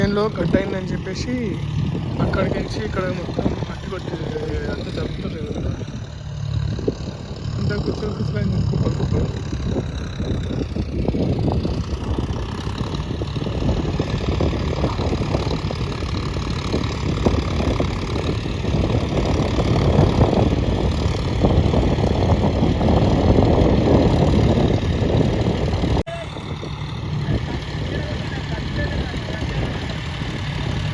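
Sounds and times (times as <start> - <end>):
heavy vehicle engine running: 0.0 - 30.9.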